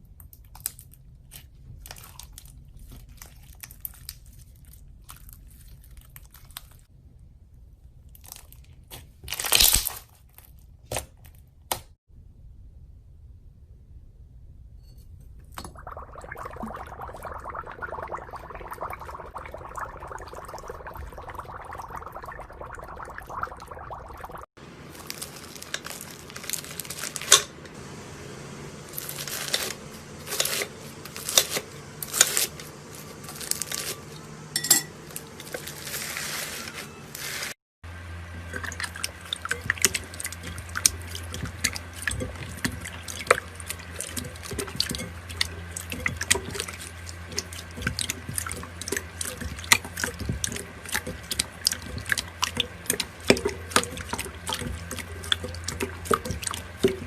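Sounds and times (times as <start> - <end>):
slime wet rush: 15.6 - 27.4, 38.5 - 57.0.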